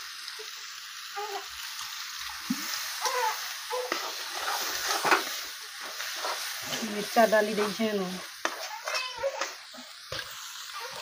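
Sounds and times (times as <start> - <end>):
curry sizzling in a pan: 0.0 - 11.0
spoon stirring and scraping pan: 2.4 - 11.0.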